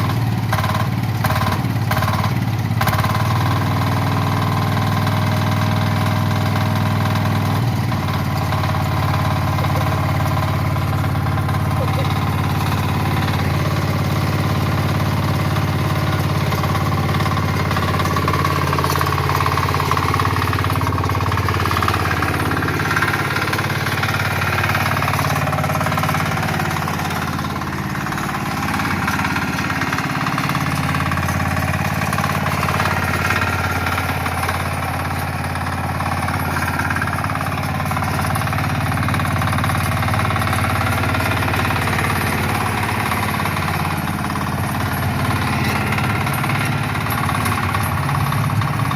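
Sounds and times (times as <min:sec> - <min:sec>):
diesel engine clattering: 0:00.0 - 0:48.9.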